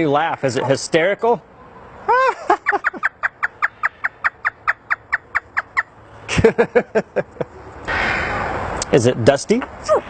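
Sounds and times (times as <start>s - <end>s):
parrot imitating laughter: 2.1s - 3.6s.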